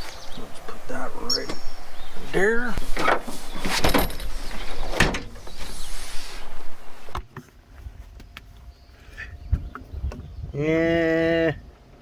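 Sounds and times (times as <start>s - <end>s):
rustling: 1.5s - 7.2s
sharp knocks and clatters: 3.0s - 5.6s.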